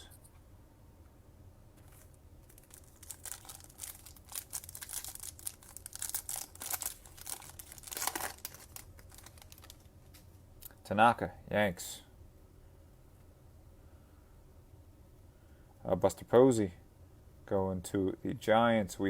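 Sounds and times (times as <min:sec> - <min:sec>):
foil wrapper tearing and crinkling: 0:01.9 - 0:09.9.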